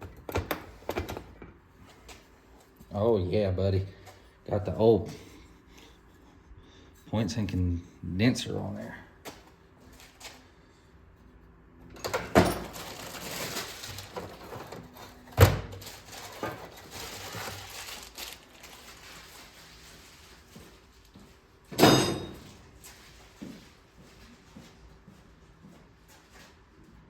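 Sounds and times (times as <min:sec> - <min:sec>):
clatter of engine parts: 0:11.9 - 0:18.0
rustling: 0:12.6 - 0:15.1, 0:15.8 - 0:21.1.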